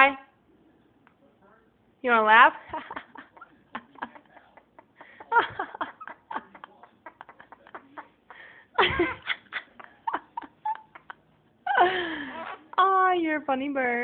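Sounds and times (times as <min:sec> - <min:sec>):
parrot laughing: 0:02.8 - 0:12.8.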